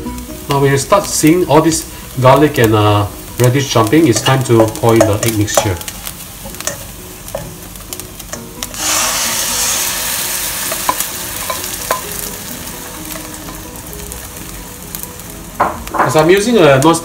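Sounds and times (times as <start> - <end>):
food sizzling in hot oil: 0.0 - 17.0
spatula knocking: 4.1 - 5.9, 10.7 - 12.2
egg poured into hot oil: 8.7 - 11.6.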